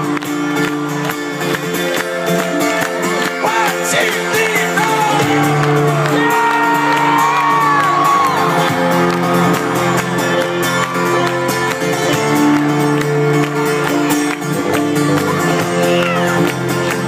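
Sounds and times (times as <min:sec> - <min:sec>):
guitar: 0:00.0 - 0:17.0
live band playing: 0:00.0 - 0:17.0
crowd shouting and whooping: 0:01.9 - 0:12.2, 0:15.2 - 0:16.5.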